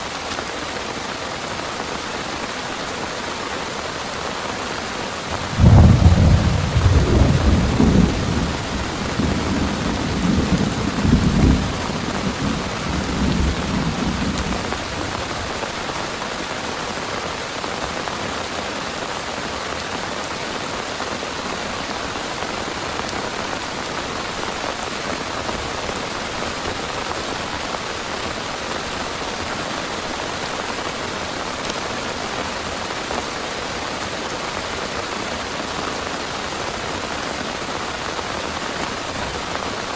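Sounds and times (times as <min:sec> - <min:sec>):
heavy rain hissing: 0:00.0 - 0:39.9
thunderclap rumbling: 0:05.2 - 0:15.6.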